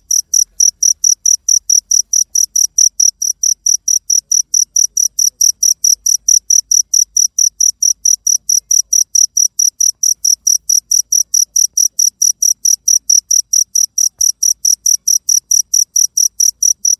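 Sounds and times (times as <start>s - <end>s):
cricket chirping: 0.0s - 16.9s.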